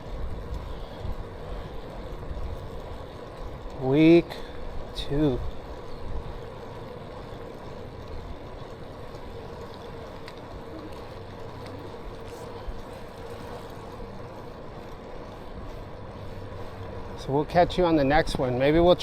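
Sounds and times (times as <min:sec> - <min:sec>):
mechanical hum and rumble: 0:00.0 - 0:19.0
faint ticks: 0:05.4 - 0:17.2.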